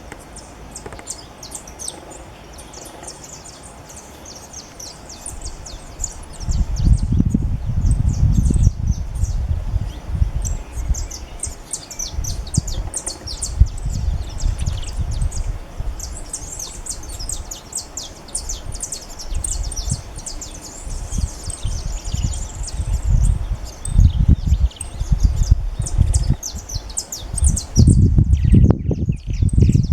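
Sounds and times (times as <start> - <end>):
songbirds twittering: 0.0 - 29.9.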